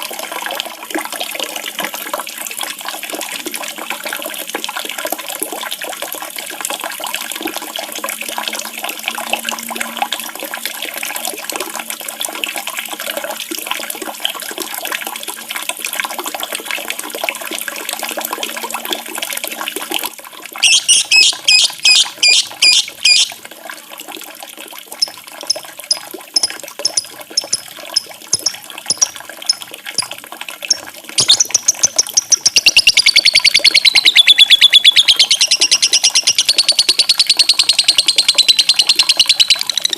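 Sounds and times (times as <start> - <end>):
songbird singing: 20.6 - 23.3, 26.4 - 29.6, 30.7 - 39.9.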